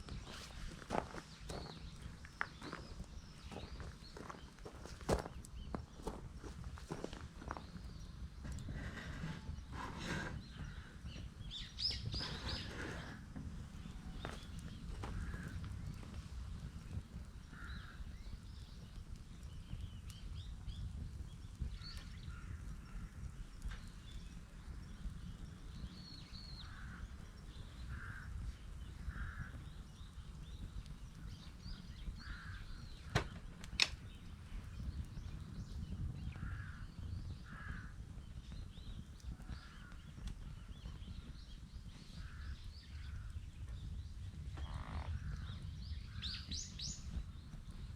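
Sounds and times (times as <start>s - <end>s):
wood fire popping: 0.0s - 47.9s
crows cawing: 15.1s - 15.6s, 17.5s - 18.0s, 26.6s - 27.1s, 27.9s - 28.4s, 29.1s - 29.6s, 32.2s - 32.8s, 36.4s - 38.0s.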